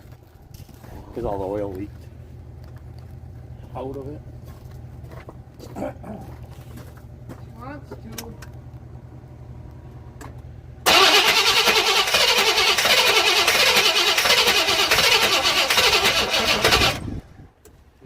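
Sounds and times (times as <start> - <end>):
faint low hum: 0.0 - 10.9
engine running loud and rough: 10.8 - 17.5.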